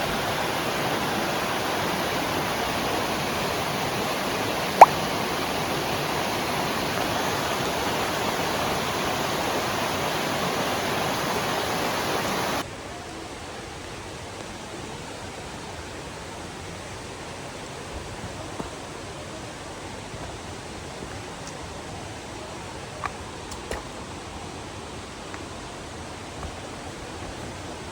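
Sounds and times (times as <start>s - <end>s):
flowing water rushing: 0.0s - 13.2s.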